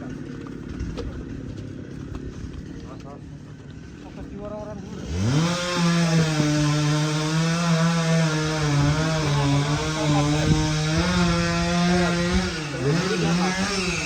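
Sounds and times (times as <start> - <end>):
chainsaw cutting wood: 4.8 - 14.0.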